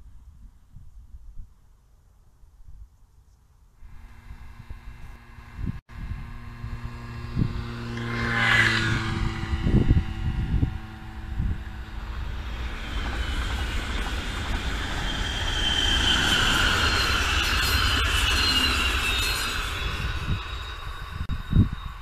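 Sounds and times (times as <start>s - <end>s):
electric train passing: 3.9s - 22.0s
vehicle passing with falling pitch: 4.3s - 15.8s.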